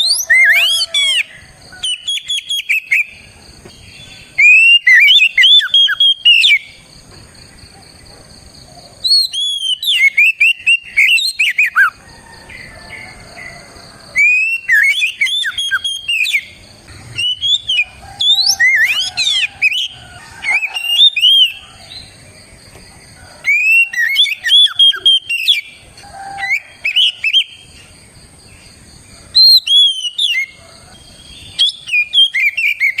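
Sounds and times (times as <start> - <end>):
magpie-robin singing whistled notes: 0.0 - 3.2, 3.8 - 6.8, 9.0 - 11.9, 14.2 - 21.6, 23.4 - 25.8, 26.4 - 27.6, 29.4 - 33.0.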